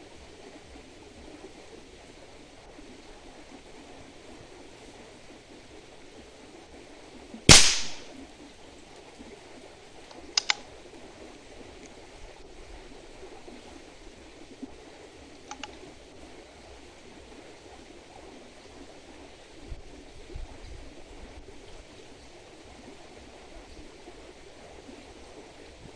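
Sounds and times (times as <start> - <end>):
air rifle shot crack: 7.5 - 8.1
faint double clicks: 7.5 - 8.1, 10.4 - 10.6, 15.5 - 15.8.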